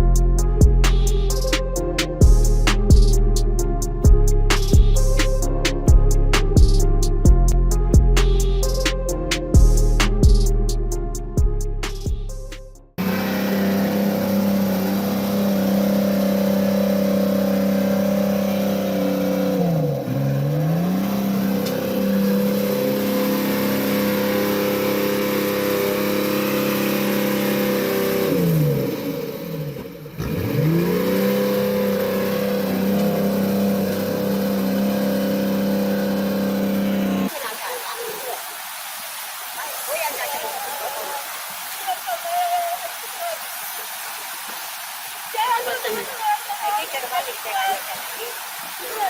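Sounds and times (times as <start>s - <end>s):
engine running hard: 0.0s - 37.4s.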